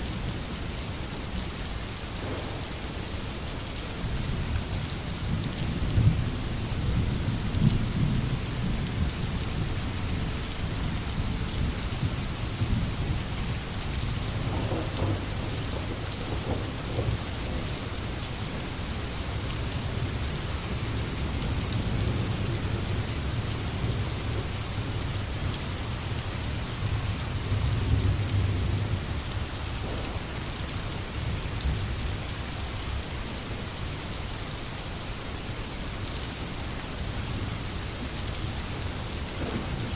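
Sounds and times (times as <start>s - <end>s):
steady rain falling: 0.0s - 39.9s
rolling thunder: 2.2s - 3.2s, 14.3s - 17.9s, 26.9s - 32.0s, 39.3s - 39.9s.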